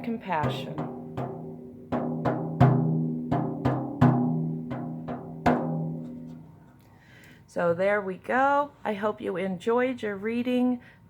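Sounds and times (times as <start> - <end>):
rawhide hand drum beats: 0.0 - 6.4.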